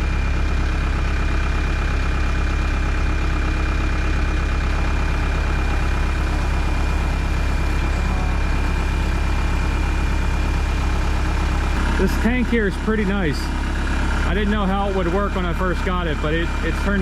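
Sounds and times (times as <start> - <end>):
diesel engine idling: 0.0 - 17.0
thin high whine: 4.7 - 11.8.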